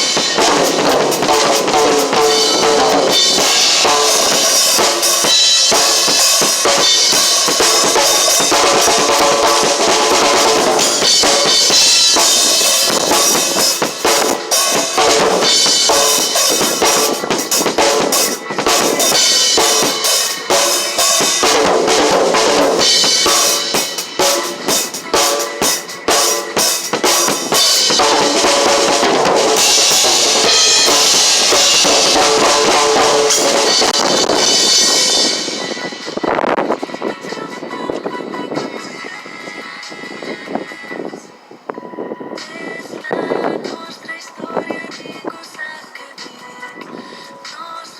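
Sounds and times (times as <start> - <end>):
cymbals washing: 0.0 - 36.6
drum kit playing: 0.0 - 36.8.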